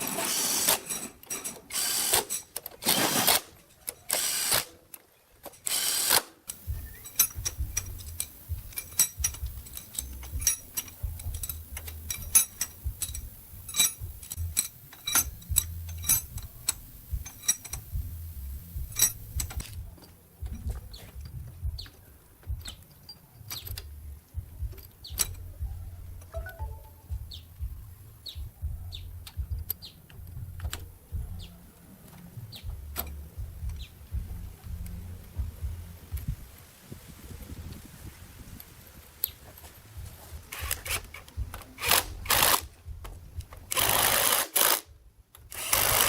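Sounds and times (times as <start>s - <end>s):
short hissing bursts: 5.7s - 19.6s
clicks and taps on metal: 6.5s - 18.1s
low hum: 6.6s - 22.7s, 23.7s - 36.5s.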